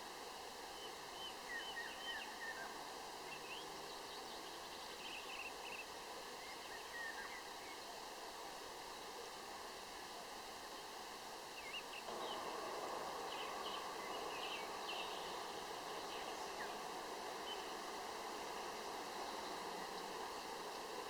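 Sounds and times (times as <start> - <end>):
steady background hiss: 0.0 - 21.0
small birds chirping: 11.6 - 21.0.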